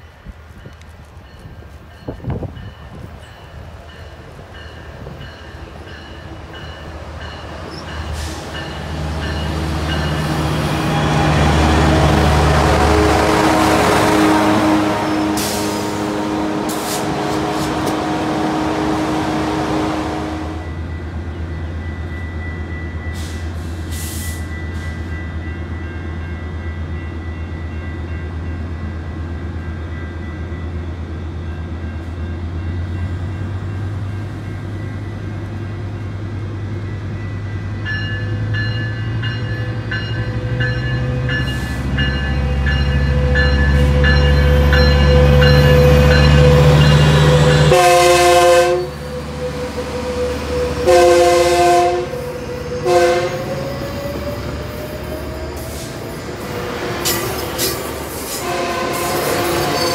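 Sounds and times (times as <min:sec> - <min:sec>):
diesel train rumble: 0:00.0 - 0:59.9
train horn blasts: 0:10.4 - 0:20.8, 0:43.1 - 0:53.6, 0:58.2 - 0:59.9.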